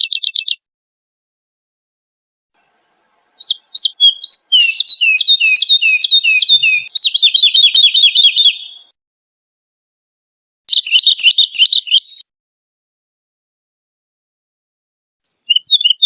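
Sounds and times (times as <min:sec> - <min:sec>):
bird singing falling notes: 0:02.6 - 0:08.9.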